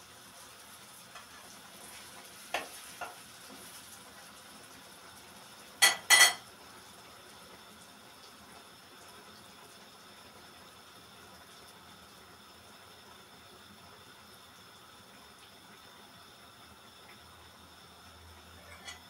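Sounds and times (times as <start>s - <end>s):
faint steady hiss: 0.0s - 19.0s
light clinks of kitchenware: 5.8s - 6.4s, 18.6s - 19.0s.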